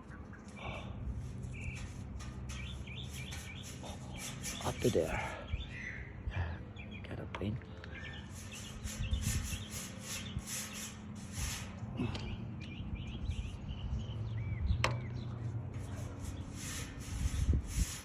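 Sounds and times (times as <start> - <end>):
paint brush scratching: 1.2 - 5.2, 8.2 - 11.9, 15.7 - 18.0.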